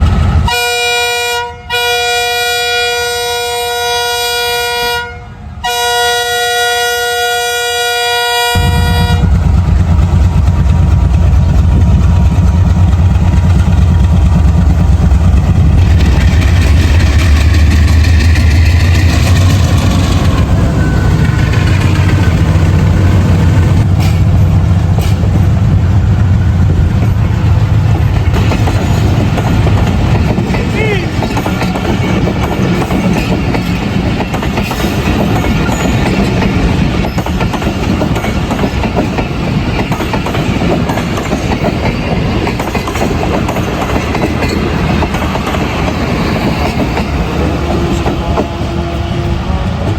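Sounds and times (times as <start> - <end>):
train rumbling past: 0.0 - 49.9
train horn blasts: 0.4 - 9.4, 47.5 - 49.9.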